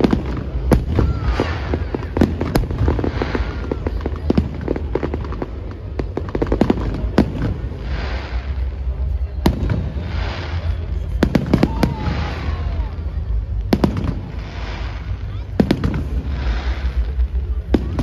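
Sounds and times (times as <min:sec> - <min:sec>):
crackling hiss: 0:00.0 - 0:18.0
fireworks bangs and cracks: 0:00.0 - 0:18.0.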